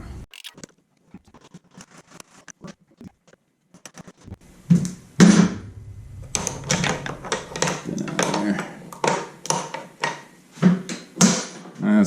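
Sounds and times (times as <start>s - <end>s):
metal parts clicking and scraping: 0.3s - 4.4s.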